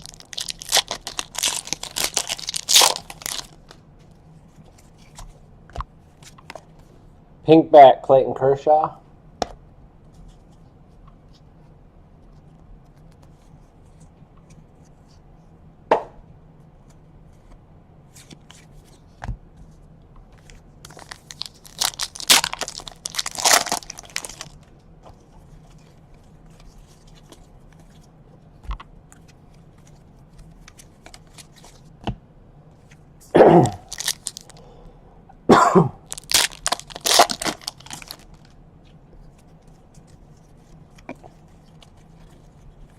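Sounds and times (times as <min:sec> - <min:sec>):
card packaging tearing and crinkling: 0:00.0 - 0:03.8, 0:20.9 - 0:24.6, 0:30.7 - 0:31.8, 0:33.7 - 0:34.6, 0:36.0 - 0:38.6.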